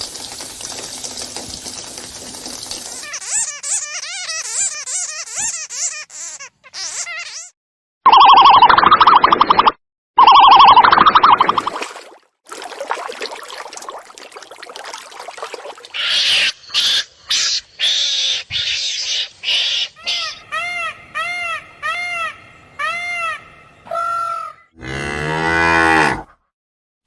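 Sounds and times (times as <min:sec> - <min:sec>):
harsh animal call bursts: 0:10.4 - 0:20.9.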